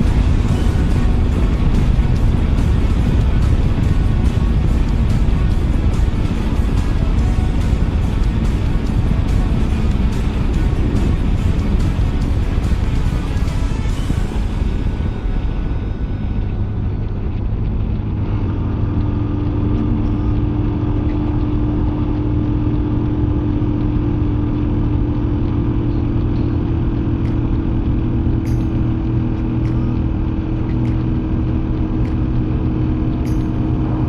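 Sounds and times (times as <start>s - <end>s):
motorcycle engine running: 0.0s - 34.0s
road and wind noise: 0.0s - 34.0s.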